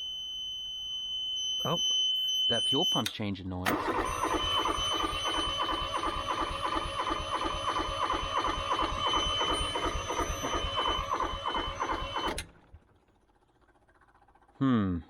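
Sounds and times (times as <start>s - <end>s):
high starter whine: 3.0s - 15.0s
diesel engine cranking on starter: 3.6s - 14.6s.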